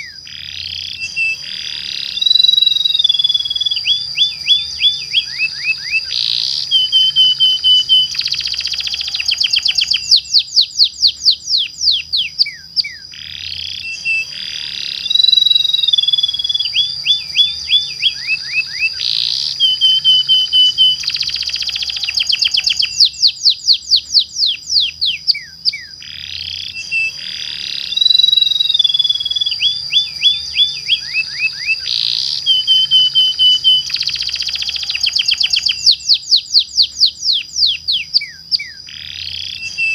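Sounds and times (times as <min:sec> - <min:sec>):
canary singing: 0:00.0 - 0:39.9
steady high tone: 0:01.0 - 0:10.3, 0:13.8 - 0:23.2, 0:26.8 - 0:35.8.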